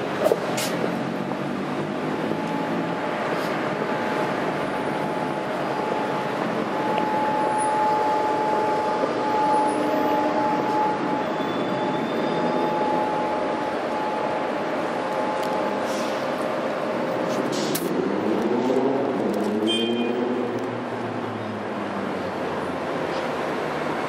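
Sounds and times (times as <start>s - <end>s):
tram wheels and motor rumbling: 0.0s - 24.0s
steady high tone: 1.6s - 17.3s.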